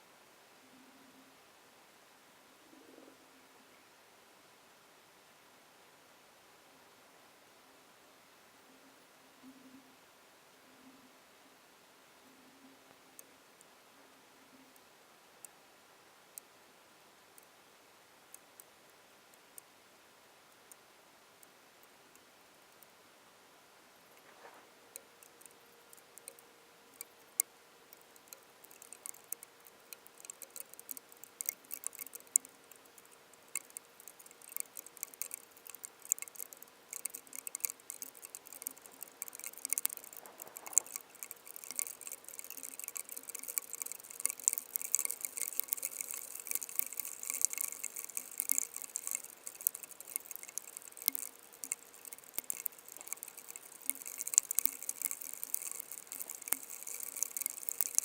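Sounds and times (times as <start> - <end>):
faint steady hum: 0.0 - 58.0
rain pattering on hard surface: 24.0 - 58.0.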